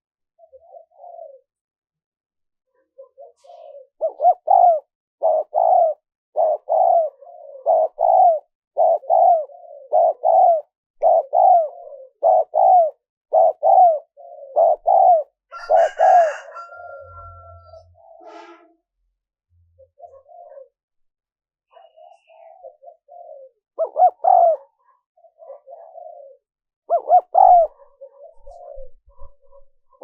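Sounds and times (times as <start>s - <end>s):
dove cooing: 0.4s - 1.6s, 2.8s - 18.2s, 19.8s - 20.8s, 21.7s - 30.0s.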